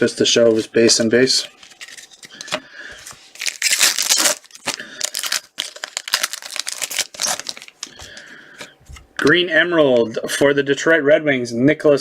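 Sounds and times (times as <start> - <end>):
wrapper tearing and crinkling: 3.3 - 8.0.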